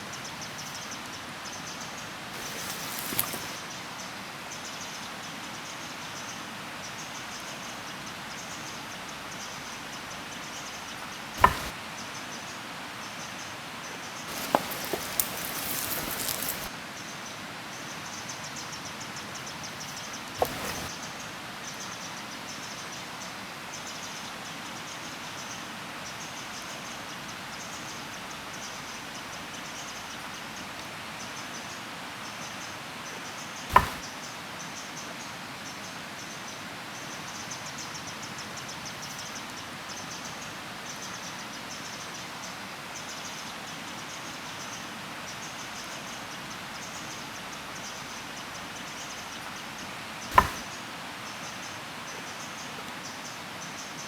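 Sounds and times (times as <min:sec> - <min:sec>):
outdoor hiss: 0:02.0 - 0:03.8, 0:11.1 - 0:12.0, 0:14.2 - 0:16.8, 0:19.8 - 0:21.1, 0:33.7 - 0:34.1, 0:50.1 - 0:51.2
sharp knocks: 0:11.4 - 0:11.7, 0:33.7 - 0:34.0, 0:50.3 - 0:50.7
insects chirping: 0:14.3 - 0:16.7.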